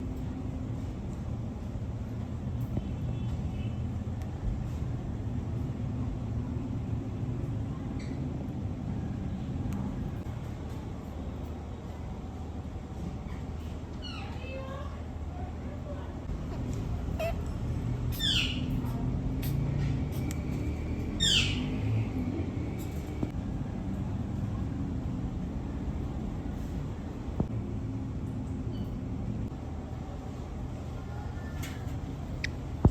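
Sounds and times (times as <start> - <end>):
steady low rumble: 15.0 - 31.4, 32.0 - 32.9.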